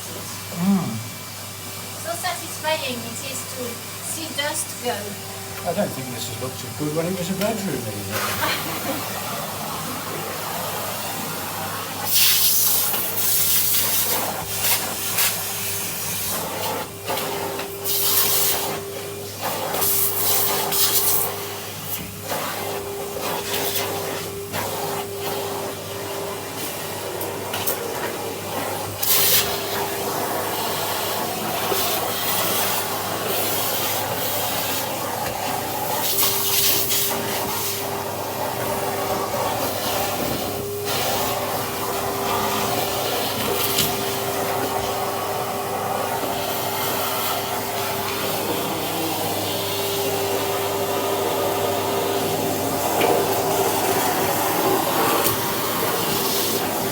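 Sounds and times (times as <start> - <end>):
vacuum cleaner running: 0.0 - 56.9.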